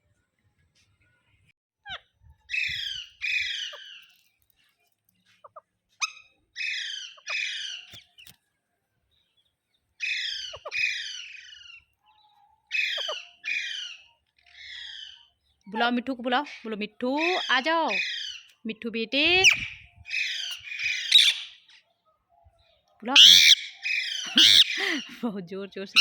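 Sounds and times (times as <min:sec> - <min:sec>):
parrot screeching: 0:01.9 - 0:04.0, 0:06.0 - 0:07.9, 0:10.0 - 0:11.8, 0:12.7 - 0:14.0, 0:17.2 - 0:18.5, 0:19.4 - 0:21.6, 0:23.2 - 0:25.0.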